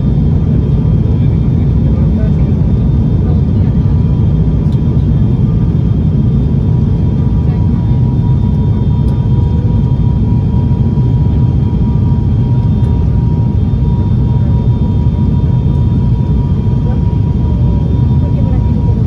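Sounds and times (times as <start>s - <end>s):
turboprop engines rumbling: 0.0s - 19.0s.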